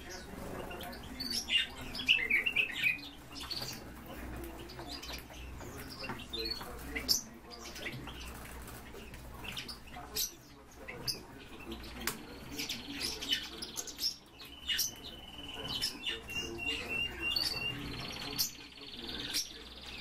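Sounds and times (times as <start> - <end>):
birds chirping: 0.0 - 20.0
bird trill: 9.6 - 20.0.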